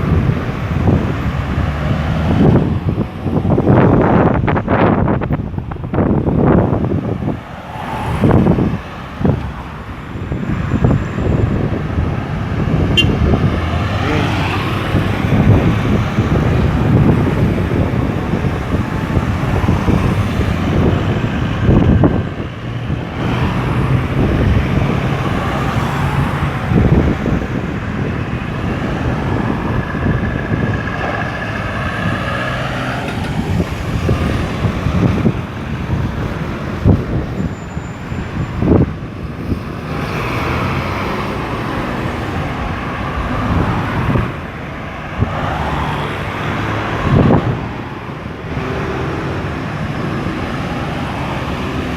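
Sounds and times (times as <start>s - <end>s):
vehicles passing: 0.0s - 51.9s.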